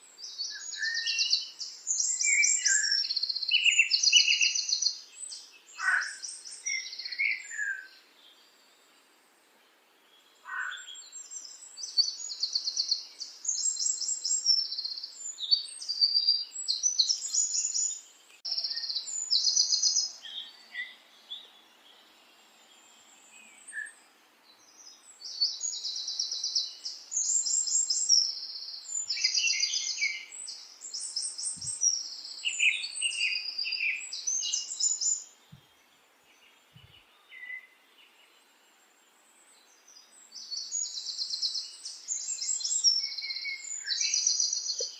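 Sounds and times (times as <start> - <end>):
small bird trilling chirps: 0.2 - 7.9, 24.9 - 35.4, 40.3 - 44.9.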